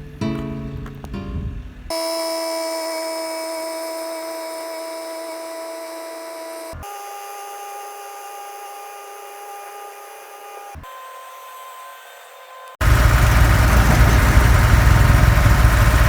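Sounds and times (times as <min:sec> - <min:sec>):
roller machinery whining: 0:12.8 - 0:16.0.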